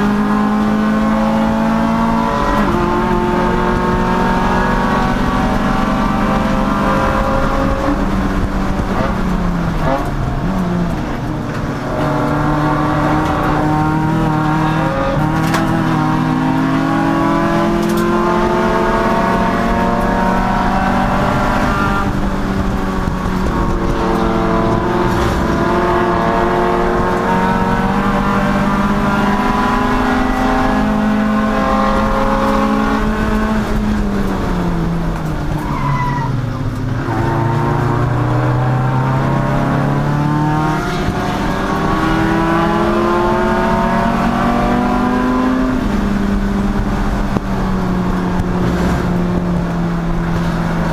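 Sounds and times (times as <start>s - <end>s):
race car engine revving: 0.0s - 50.9s
tyre squeal: 35.6s - 37.6s.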